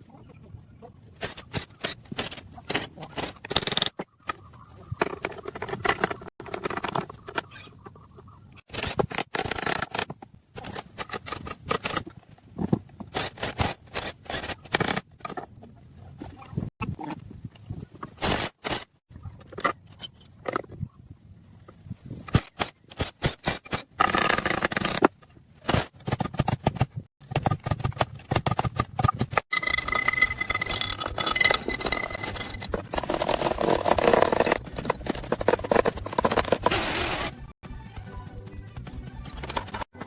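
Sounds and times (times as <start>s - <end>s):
hand tools scraping metal: 29.5s - 37.3s.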